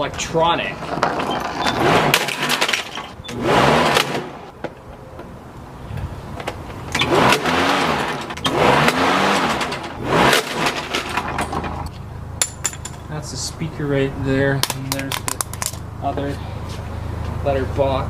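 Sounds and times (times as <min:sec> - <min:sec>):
lawnmower engine surging: 0:00.4 - 0:04.5, 0:06.9 - 0:11.9.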